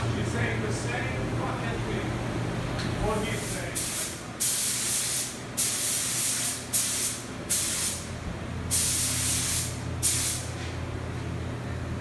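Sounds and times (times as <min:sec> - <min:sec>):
steady low hum: 0:00.0 - 0:12.0
paint spray gun hissing: 0:03.4 - 0:08.0, 0:08.7 - 0:10.4.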